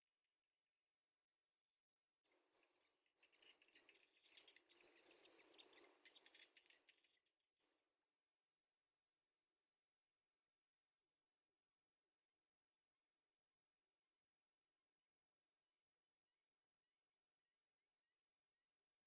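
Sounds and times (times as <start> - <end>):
baby birds chirping: 2.8 - 7.0.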